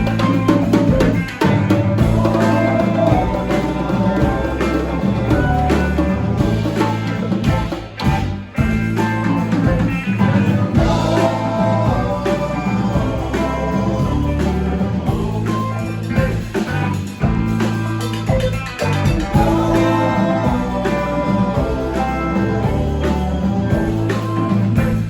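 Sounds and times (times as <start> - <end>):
electric guitar: 0.0 - 25.0
live rock band playing: 0.0 - 25.0.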